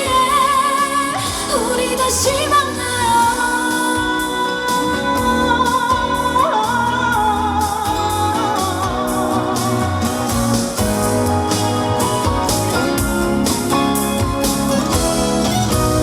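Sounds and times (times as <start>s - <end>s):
woman singing wordless long notes: 0.0s - 10.9s
pop ballad backing music: 0.0s - 16.0s.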